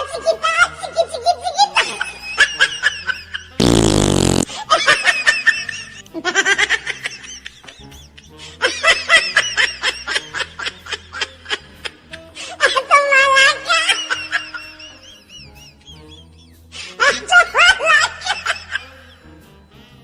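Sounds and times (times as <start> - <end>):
laughter: 0.2 - 3.6, 4.5 - 19.4
prank fart sound: 3.6 - 4.5
background music: 4.4 - 20.0.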